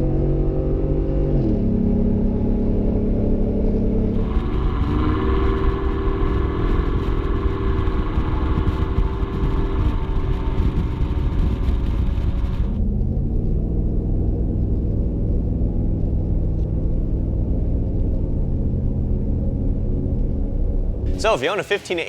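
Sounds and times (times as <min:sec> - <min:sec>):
car engine revving: 0:02.9 - 0:12.7.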